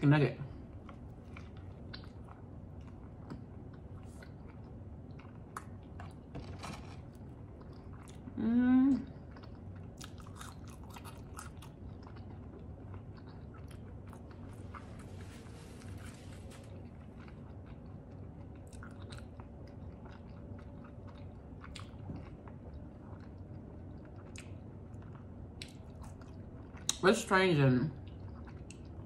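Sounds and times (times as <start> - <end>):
chewing with wet mouth clicks: 0.7 - 6.4, 7.5 - 8.4, 9.0 - 15.1, 16.5 - 27.0, 28.0 - 29.0
person humming: 8.4 - 9.0
paper napkin rustling: 14.8 - 16.8.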